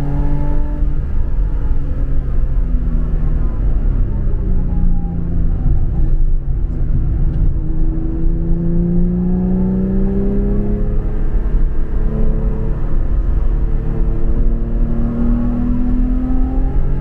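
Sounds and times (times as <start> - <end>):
race car engine revving: 7.3 - 17.0.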